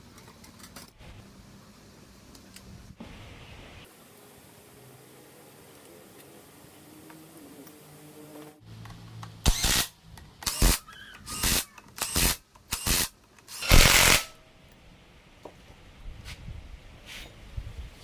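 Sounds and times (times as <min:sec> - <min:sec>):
compressed-air tool blasts: 0:09.4 - 0:14.4.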